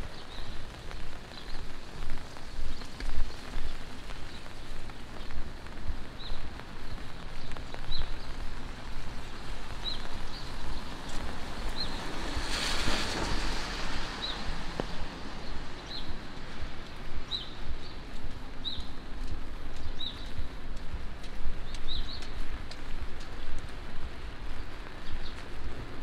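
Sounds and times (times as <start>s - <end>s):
rain on wet street: 0.0s - 26.0s
car tyres hissing on wet road: 0.1s - 19.6s.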